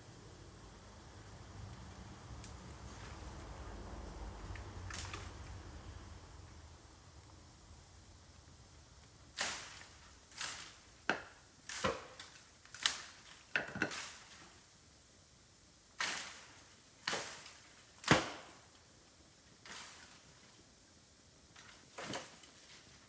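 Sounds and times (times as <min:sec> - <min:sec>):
dry bamboo cracking: 0:04.4 - 0:05.6, 0:09.4 - 0:14.5.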